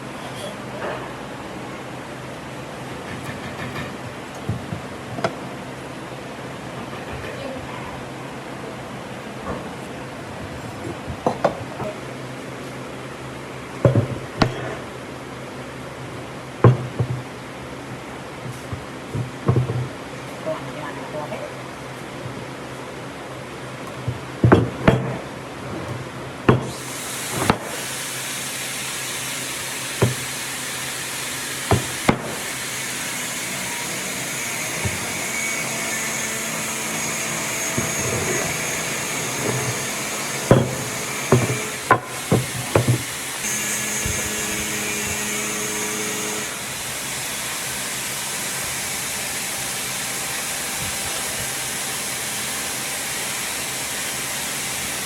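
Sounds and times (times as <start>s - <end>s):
steady hiss: 17.2s - 55.0s.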